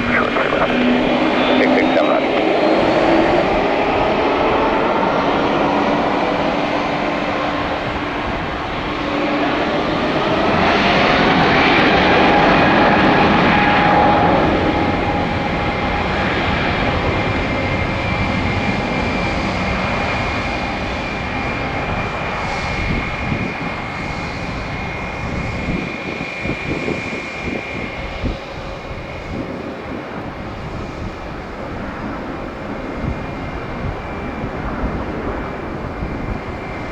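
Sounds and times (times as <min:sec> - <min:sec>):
rising engine whine: 0:00.0 - 0:25.9
jet engines roaring: 0:00.0 - 0:36.9.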